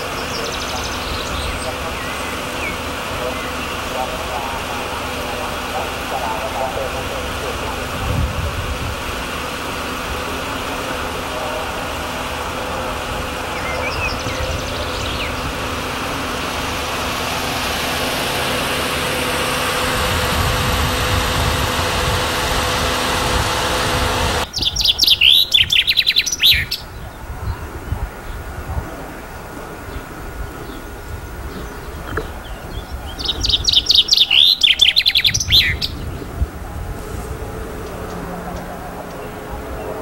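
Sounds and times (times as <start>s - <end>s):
faint low hum: 0.0s - 24.5s, 35.3s - 40.0s
steady rushing noise: 0.0s - 24.9s, 35.5s - 40.0s
songbird singing: 0.0s - 40.0s.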